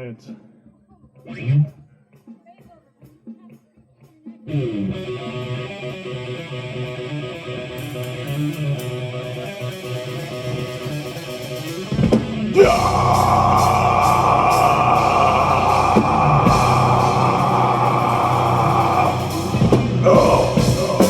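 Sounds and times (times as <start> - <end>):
live metal band playing: 4.5 - 21.0
solo electric guitar: 4.5 - 21.0.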